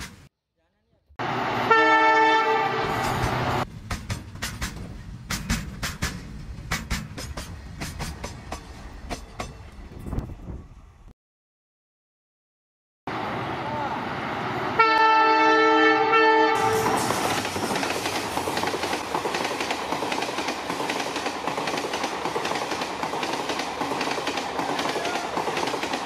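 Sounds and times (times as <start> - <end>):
train horn: 1.6 - 3.2, 14.7 - 17.0
train wheels clattering: 2.8 - 10.4, 16.7 - 26.0.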